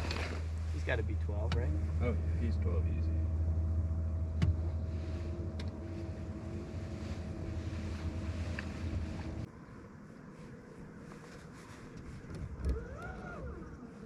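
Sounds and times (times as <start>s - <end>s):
boat motor humming: 0.0s - 9.5s, 11.8s - 14.0s.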